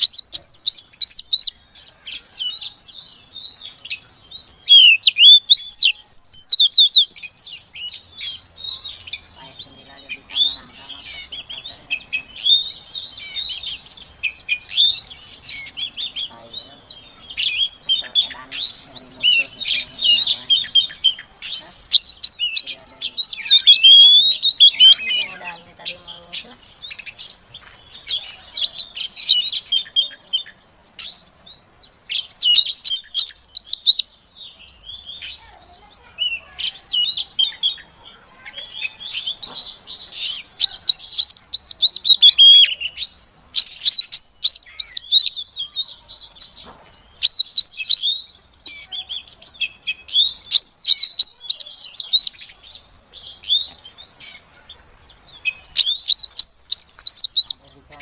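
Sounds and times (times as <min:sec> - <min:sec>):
bird chirping and twittering: 0:00.0 - 0:58.0.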